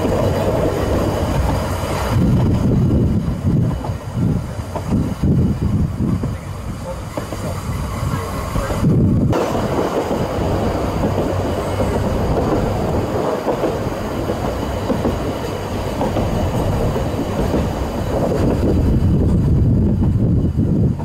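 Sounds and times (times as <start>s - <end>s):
train wheels running on rails: 0.0s - 21.0s.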